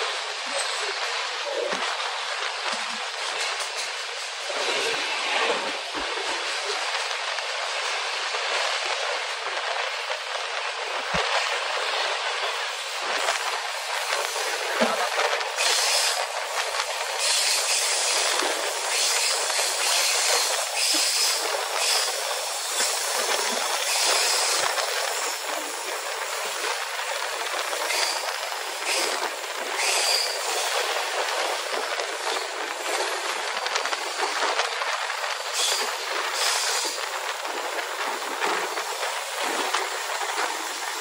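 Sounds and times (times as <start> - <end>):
train wheels rushing on rails: 0.0 - 41.0.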